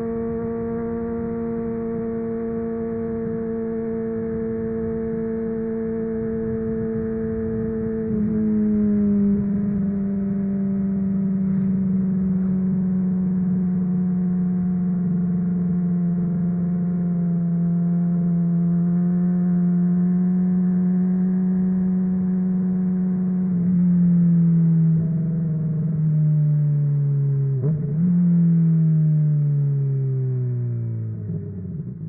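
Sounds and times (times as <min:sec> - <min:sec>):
motorcycle engine steady throttle: 0:00.0 - 0:32.0.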